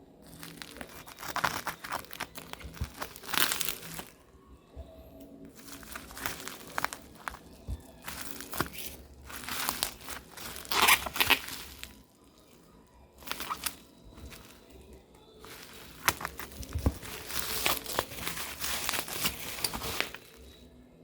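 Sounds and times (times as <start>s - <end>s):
packaging crinkling and rustling: 0.2s - 4.2s, 5.5s - 20.6s
packaging tearing: 0.2s - 4.2s, 5.5s - 12.5s, 13.2s - 14.8s, 15.4s - 20.6s.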